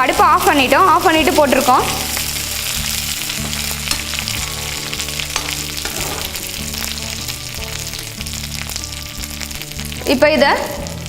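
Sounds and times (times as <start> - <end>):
oil crackling and sizzling: 0.0 - 11.0
spatula scraping pan: 0.2 - 7.2.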